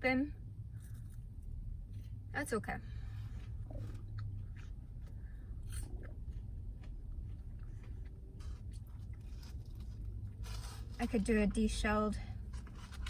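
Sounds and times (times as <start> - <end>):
steady low hum: 0.0 - 13.0
chewing and biting food: 3.0 - 11.0
small crunches: 3.3 - 11.3.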